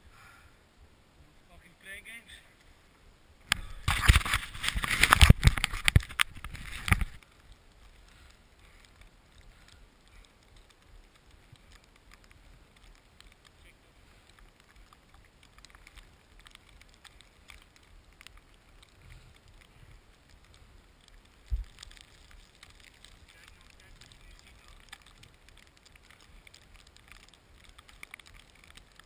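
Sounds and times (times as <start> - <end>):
faint steady hiss: 0.0 - 29.0.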